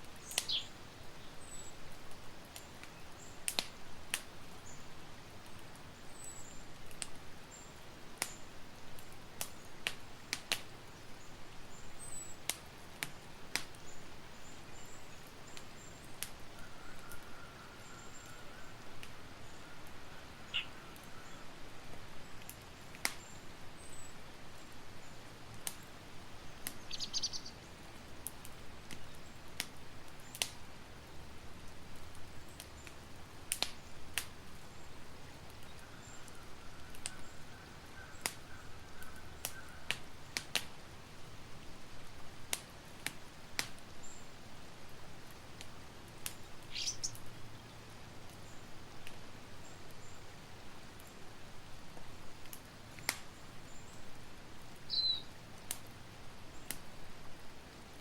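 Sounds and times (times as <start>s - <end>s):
campfire crackling: 0.0s - 58.0s
bird chirp: 0.2s - 1.8s, 20.4s - 21.4s, 26.8s - 27.6s, 46.6s - 47.8s, 54.9s - 55.3s.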